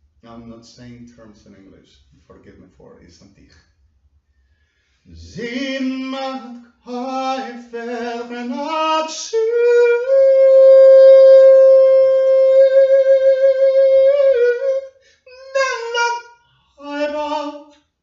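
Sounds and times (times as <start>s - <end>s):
person singing unaccompanied: 5.1s - 17.8s.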